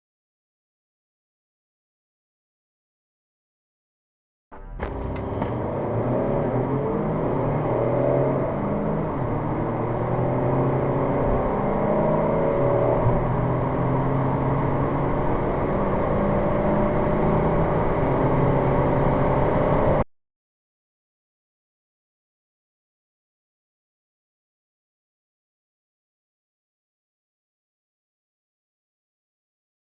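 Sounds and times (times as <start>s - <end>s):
car engine accelerating hard: 4.6s - 20.0s.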